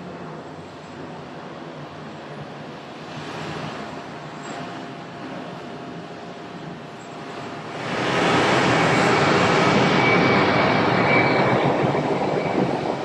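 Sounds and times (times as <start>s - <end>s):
jet airliner passing: 0.0s - 13.0s
thin high engine whine: 3.7s - 13.0s.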